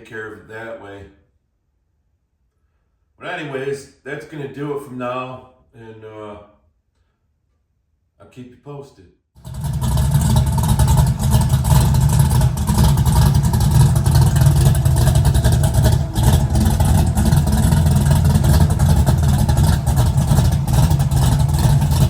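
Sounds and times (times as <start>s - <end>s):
loud car engine running: 9.4s - 22.0s.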